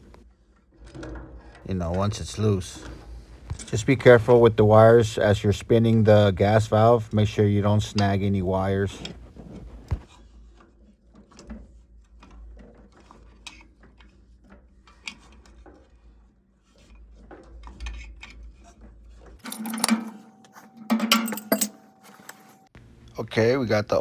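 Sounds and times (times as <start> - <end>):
metal clanking: 19.4 - 22.7
metal tools clicking and scraping: 19.4 - 22.7.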